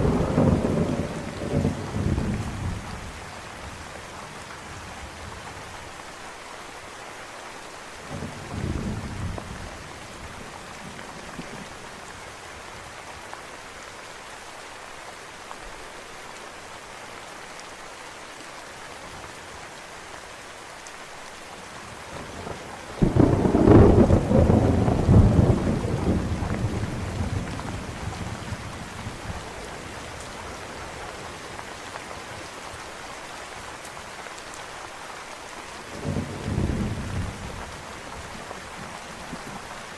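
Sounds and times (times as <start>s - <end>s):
thunder rumbling: 0.0s - 3.2s, 22.2s - 29.9s
steady rain falling: 0.0s - 39.9s.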